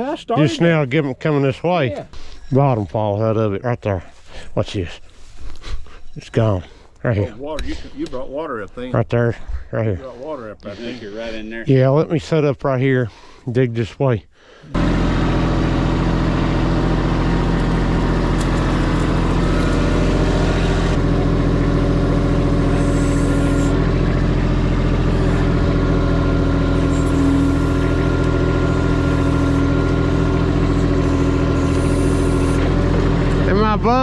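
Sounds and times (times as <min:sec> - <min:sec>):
diesel engine running while digging: 0:14.7 - 0:34.0.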